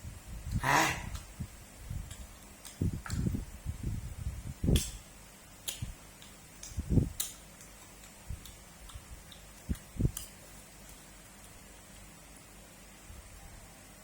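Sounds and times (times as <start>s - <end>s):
wet mouth clicks: 0.5s - 1.3s, 4.7s - 5.0s, 5.6s - 12.1s
person chewing food: 5.6s - 12.3s.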